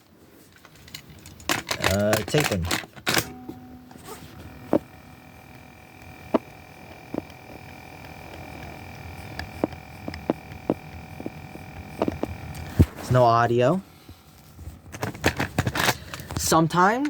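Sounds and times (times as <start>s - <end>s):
faint steady hum: 0.0s - 17.0s
thin high whine: 1.8s - 14.9s.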